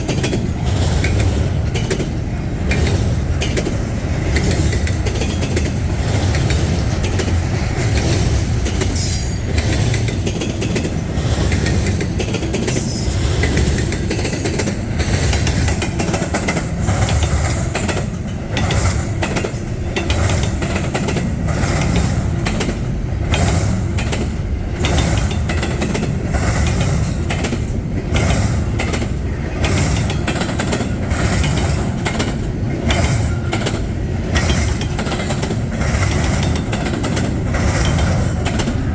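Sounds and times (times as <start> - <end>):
freight train rumbling past: 0.0 - 38.9
train wheels clicking and knocking: 0.0 - 38.9.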